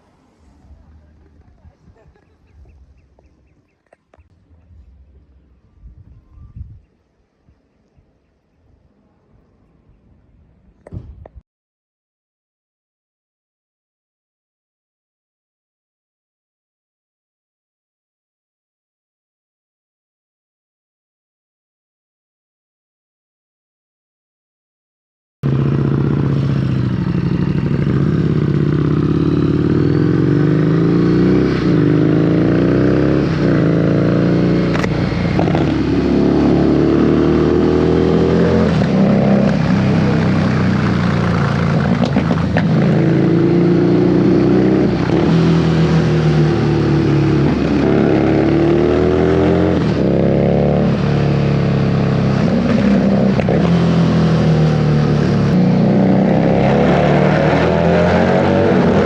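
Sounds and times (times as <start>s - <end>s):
motorcycle engine revving: 25.4s - 59.0s.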